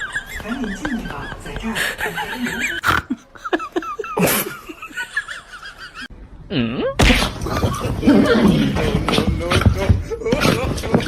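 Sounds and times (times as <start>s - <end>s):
person laughing: 0.0s - 6.1s.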